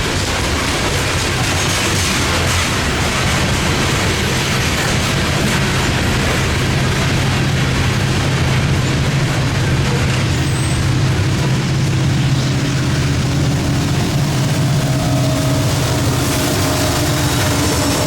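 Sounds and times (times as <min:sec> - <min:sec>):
freight train passing: 0:00.0 - 0:18.0.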